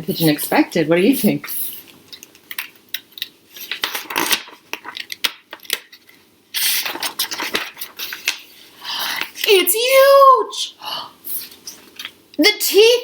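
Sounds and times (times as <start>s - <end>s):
page turning: 1.7s - 9.6s
book handling clicks and rustles: 1.8s - 9.6s.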